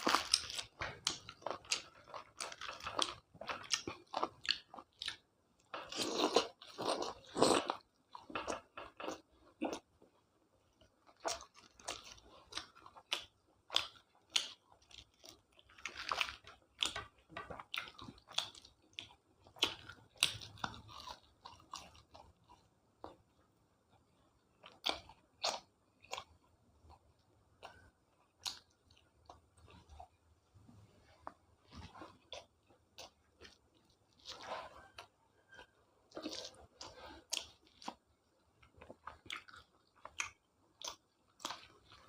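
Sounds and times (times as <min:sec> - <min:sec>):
person chewing and crunching food: 0:00.0 - 0:42.0.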